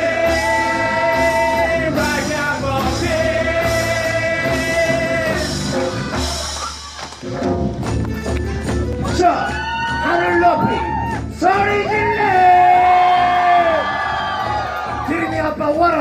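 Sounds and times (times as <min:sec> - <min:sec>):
live reggae band playing: 0:00.0 - 0:13.7.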